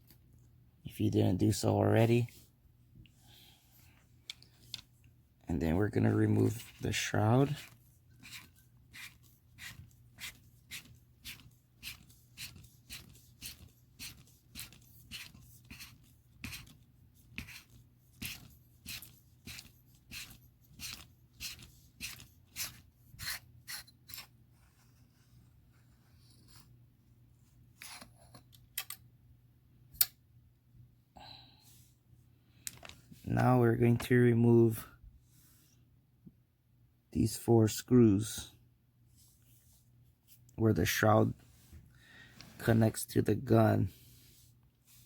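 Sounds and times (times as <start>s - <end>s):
threaded part rasping as turned: 7.5s - 16.8s.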